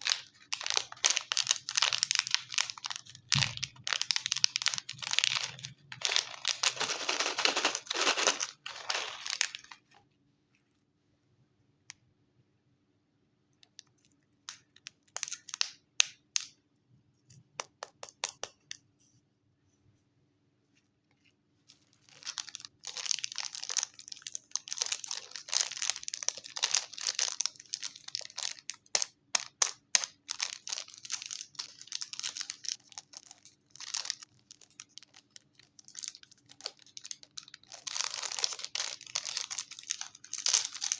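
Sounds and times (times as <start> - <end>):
wrapper crinkling and tearing: 0.0 - 10.0, 21.8 - 40.9.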